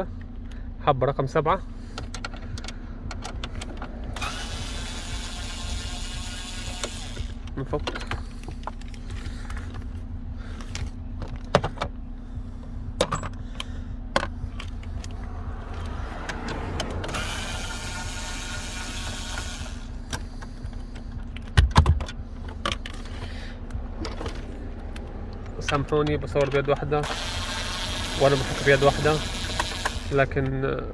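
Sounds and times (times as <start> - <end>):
steady low hum: 0.0 - 30.9
electric screwdriver running: 3.6 - 7.5, 15.0 - 20.4, 27.0 - 30.4.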